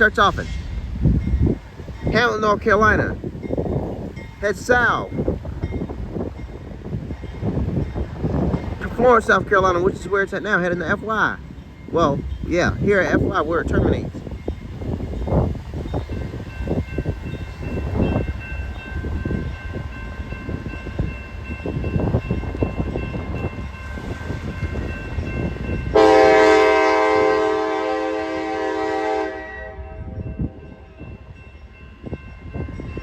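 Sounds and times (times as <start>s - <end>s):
wind buffeting microphone: 0.0s - 33.0s
locomotive air horn blast: 25.9s - 30.6s.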